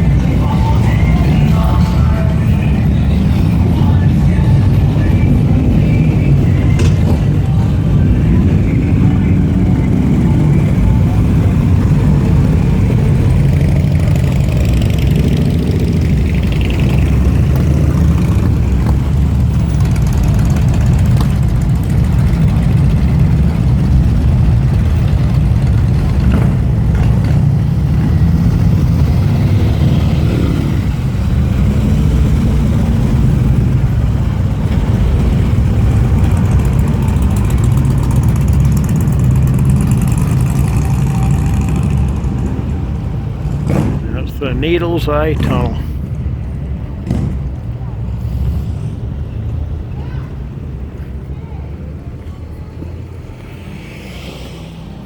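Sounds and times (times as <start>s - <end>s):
motorcycle engine idling: 0.1s - 27.9s, 34.4s - 42.2s.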